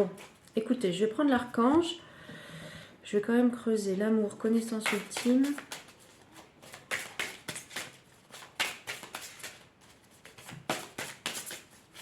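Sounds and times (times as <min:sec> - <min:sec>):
cards being shuffled: 0:04.8 - 0:12.0.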